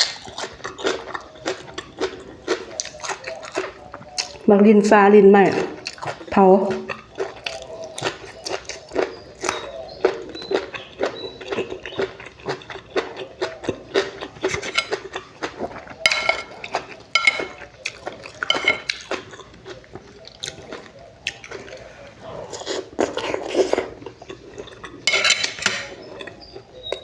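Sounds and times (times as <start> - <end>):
person chewing: 0.0 - 4.5, 5.6 - 27.0
cutlery clinking on dish: 14.0 - 15.1, 16.0 - 19.2, 25.0 - 26.4.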